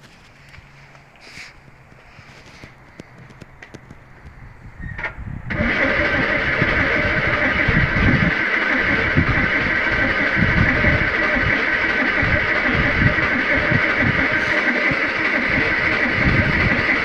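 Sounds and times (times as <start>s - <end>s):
car engine starting: 0.0s - 17.0s
loud steady engine noise: 0.0s - 17.0s.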